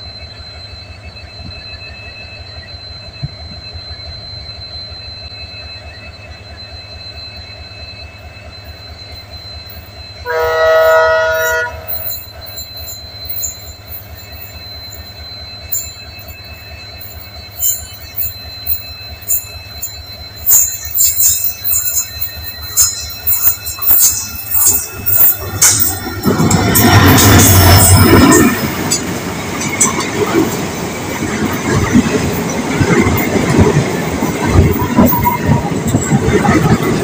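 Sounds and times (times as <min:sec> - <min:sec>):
train wheels rumbling on rail: 0:00.0 - 0:37.0
thin high wheel squeal: 0:00.2 - 0:37.0
locomotive horn: 0:10.2 - 0:12.6
metallic wheel squeaks and clicks: 0:11.3 - 0:37.0.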